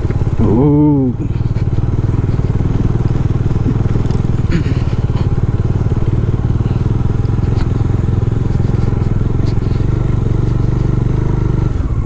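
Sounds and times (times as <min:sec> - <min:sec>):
motorcycle engine at low speed: 0:00.0 - 0:12.0.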